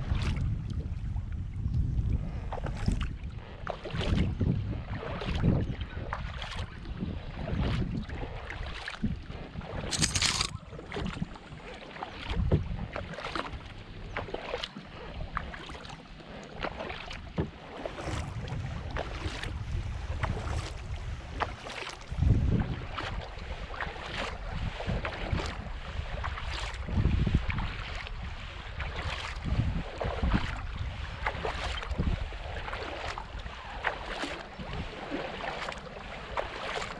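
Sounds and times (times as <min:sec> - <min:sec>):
wind buffeting microphone: 0:00.0 - 0:08.3, 0:12.2 - 0:13.1, 0:18.0 - 0:33.8
paddle strokes splashing water: 0:02.4 - 0:36.9.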